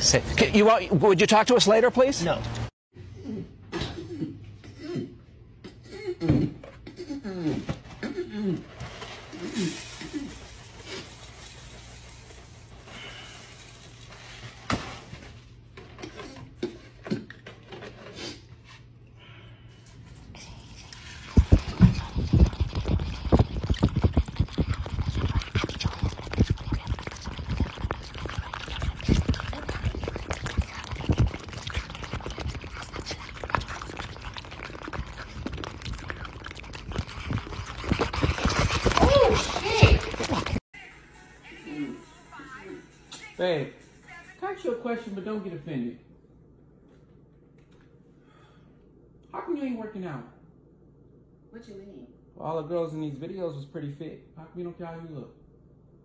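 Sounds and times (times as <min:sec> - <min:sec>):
cereal crackling in milk: 0:21.0 - 0:40.6.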